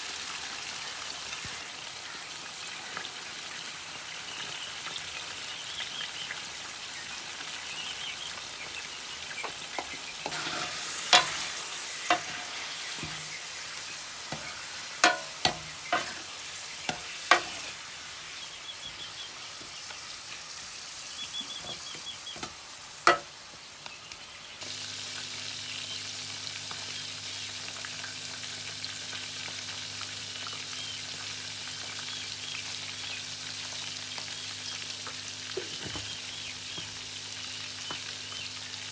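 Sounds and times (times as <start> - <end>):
chicken sizzling in oil: 0.0 - 38.9
spoon clinking on pan: 14.3 - 16.2.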